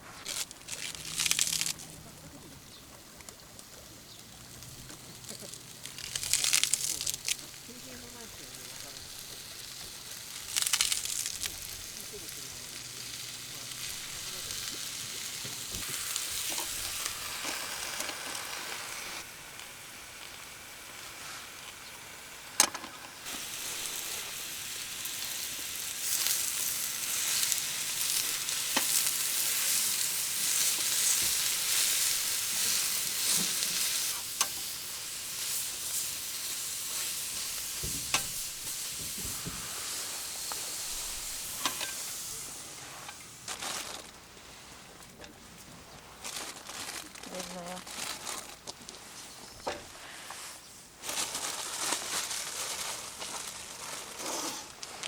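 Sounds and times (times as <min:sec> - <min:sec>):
food sizzling in a hot pan: 0:04.0 - 0:43.4
sharp pops: 0:37.3 - 0:42.2.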